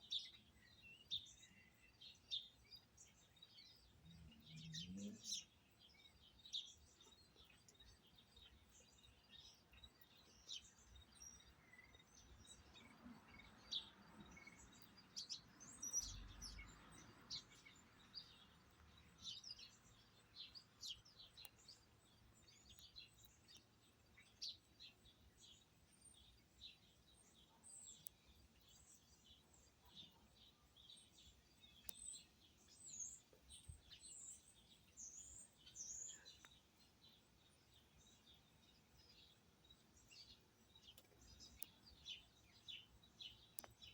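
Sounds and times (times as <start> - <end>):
wild birds chirping: 0.0 - 43.9.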